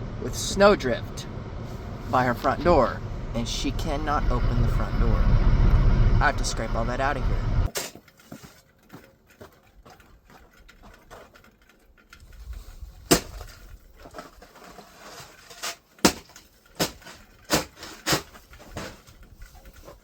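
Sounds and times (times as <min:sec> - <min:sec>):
shovel scraping ice: 0:12.4 - 0:20.0
shovel striking ice: 0:13.1 - 0:19.0.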